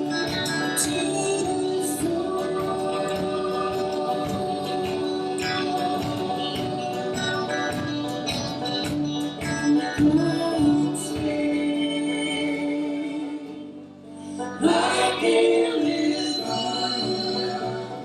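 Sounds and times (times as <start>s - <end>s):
live band music: 0.0s - 18.0s.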